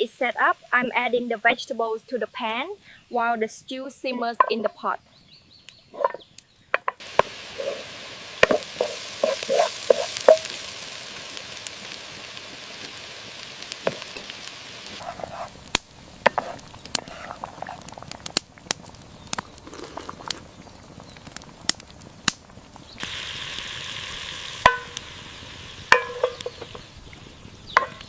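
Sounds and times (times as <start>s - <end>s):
vegetables sizzling in a pan: 7.0s - 18.4s, 19.0s - 28.0s
utensil stirring and scraping: 7.2s - 10.5s, 15.0s - 15.6s, 16.3s - 18.0s.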